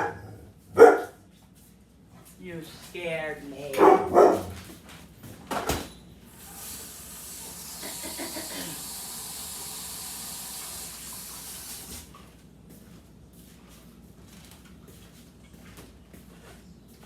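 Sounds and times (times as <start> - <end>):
tap running water into sink: 6.3 - 12.1.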